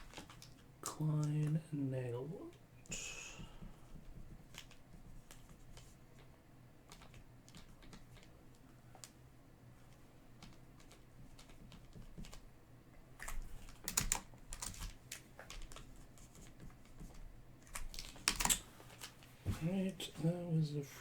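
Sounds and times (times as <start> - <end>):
trading cards clicking and snapping: 0.0 - 1.6, 2.8 - 9.2, 9.8 - 19.3.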